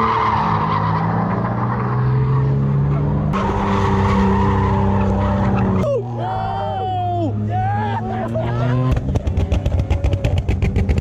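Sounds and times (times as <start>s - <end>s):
car engine at high revs: 6.9s - 11.0s.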